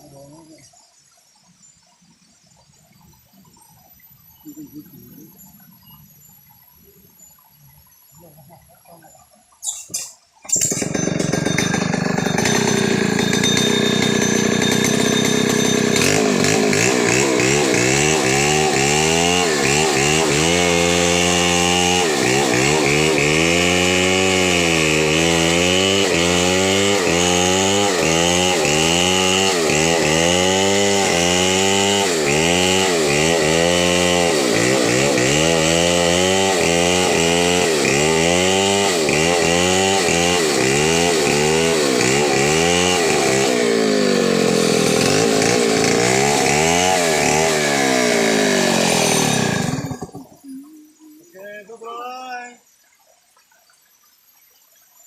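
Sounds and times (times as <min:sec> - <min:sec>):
chainsaw cutting wood: 0:09.9 - 0:50.5.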